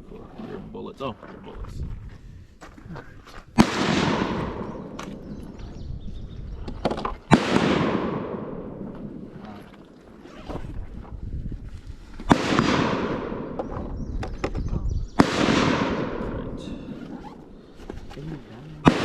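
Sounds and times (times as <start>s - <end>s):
gunshots with rolling echo: 3.6s - 5.6s, 7.3s - 9.4s, 12.3s - 14.0s, 15.1s - 17.8s, 18.8s - 19.0s.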